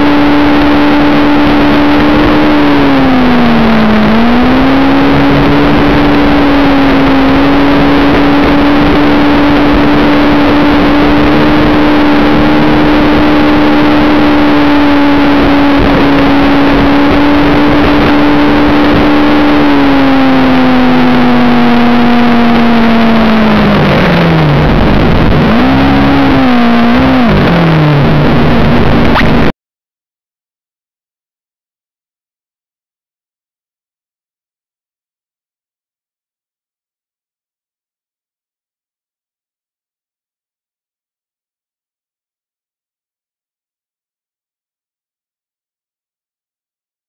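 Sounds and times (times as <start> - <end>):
motorcycle engine running: 0.0 - 29.5
wind rushing on microphone: 0.0 - 29.5.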